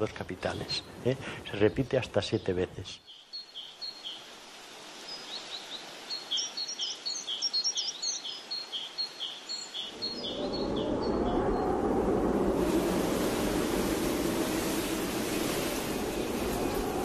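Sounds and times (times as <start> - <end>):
small bird chirping: 5.0 - 11.6
steady rushing noise: 9.9 - 17.0.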